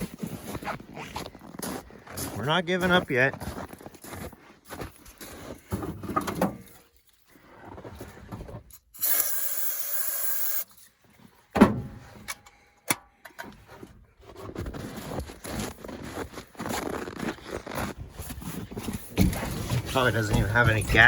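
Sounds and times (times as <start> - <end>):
rubbing and scraping: 13.6 - 21.0.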